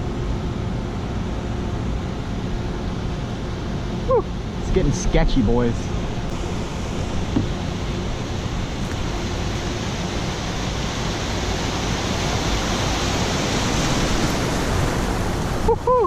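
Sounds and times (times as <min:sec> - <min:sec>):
rushing water wake: 0:04.1 - 0:16.0.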